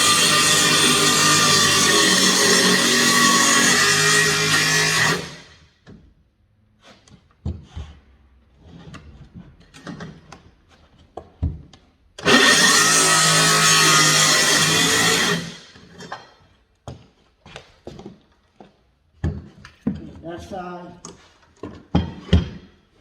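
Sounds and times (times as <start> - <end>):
circular saw cutting wood: 0.0 - 5.6, 12.2 - 15.9.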